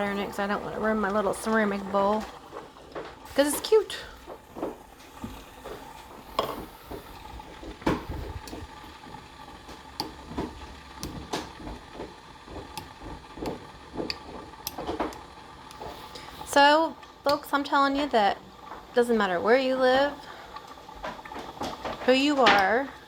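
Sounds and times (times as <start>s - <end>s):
water simmering in a pan: 0.0s - 23.0s
light ticks and knocks: 7.6s - 16.3s.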